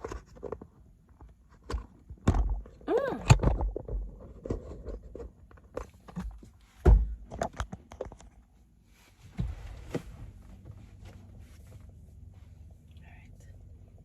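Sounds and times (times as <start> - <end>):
heavy thump: 9.3 - 10.8.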